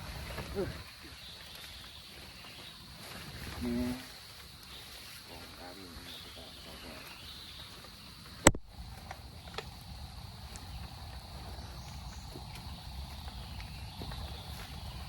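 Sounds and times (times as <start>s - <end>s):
insects droning: 0.0s - 15.0s
low microphone rumble: 6.1s - 15.0s.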